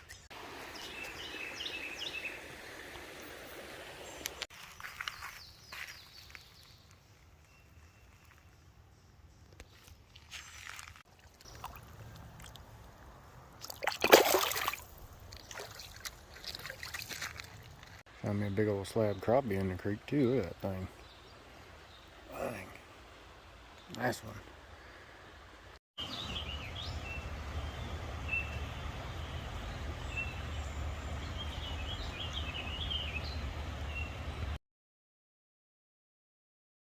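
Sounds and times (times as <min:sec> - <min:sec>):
small birds chirping: 0:00.0 - 0:12.7, 0:15.3 - 0:25.0, 0:26.0 - 0:34.6
water splashing and sloshing: 0:09.5 - 0:18.1.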